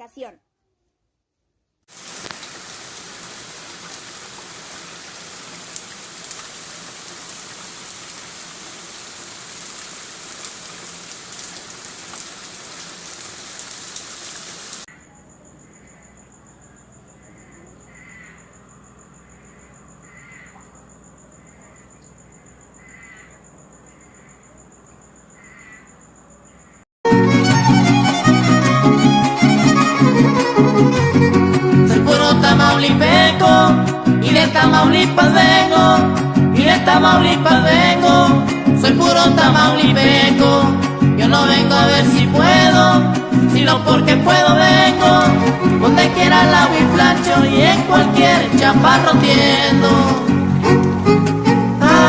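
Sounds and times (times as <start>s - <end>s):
heavy rain falling: 1.9s - 14.9s.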